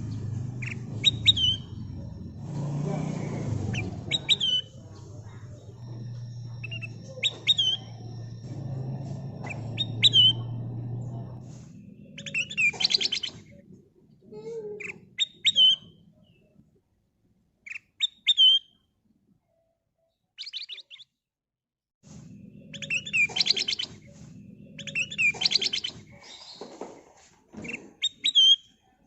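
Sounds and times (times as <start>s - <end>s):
bulbul singing: 0.0s - 13.8s, 14.8s - 16.5s, 22.3s - 26.6s
low rumble: 0.0s - 13.8s.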